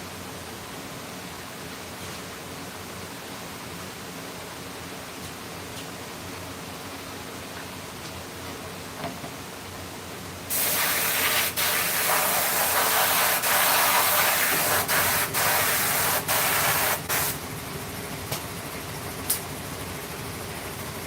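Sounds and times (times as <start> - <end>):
compressed air hissing from nozzle: 10.5 - 17.4.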